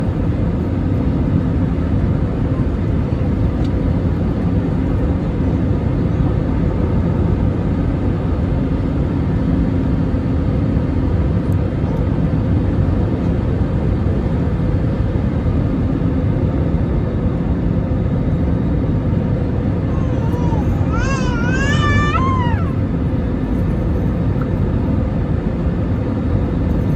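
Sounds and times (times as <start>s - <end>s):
airliner jet noise landing: 0.0s - 26.9s.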